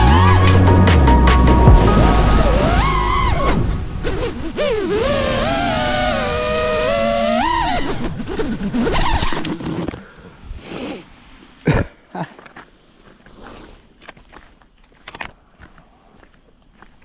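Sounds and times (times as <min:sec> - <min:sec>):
quadcopter motors whining: 0:00.0 - 0:10.0.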